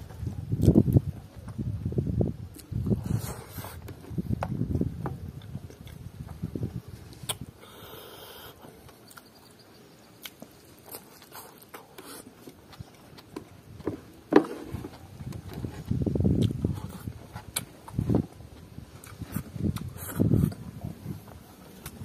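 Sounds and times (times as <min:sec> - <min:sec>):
chewing and lip smacking: 0:02.5 - 0:03.8, 0:07.2 - 0:13.4, 0:16.4 - 0:18.0, 0:19.0 - 0:20.6
sharp mouth clicks: 0:07.2 - 0:09.3, 0:16.4 - 0:17.7, 0:19.0 - 0:20.6.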